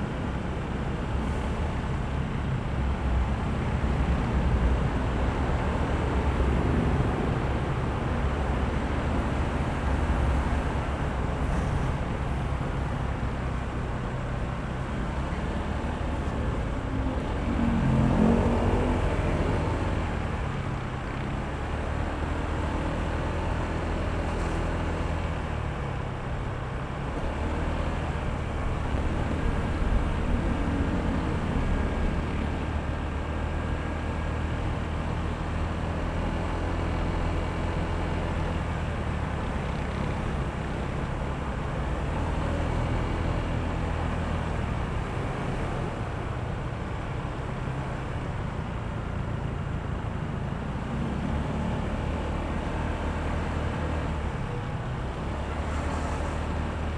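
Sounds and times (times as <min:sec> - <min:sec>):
wind and road noise: 0:00.0 - 0:56.9.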